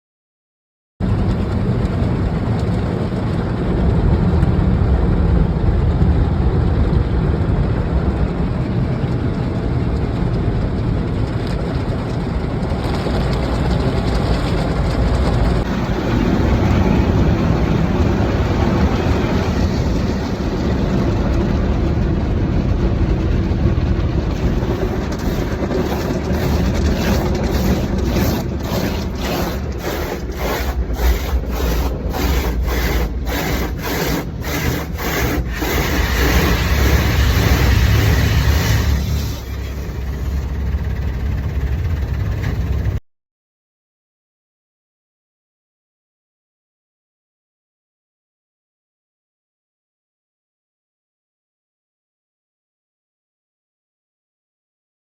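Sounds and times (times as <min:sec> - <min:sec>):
loud rushing noise: 0:11.7 - 0:40.8
rhythmic strokes: 0:24.3 - 0:38.8.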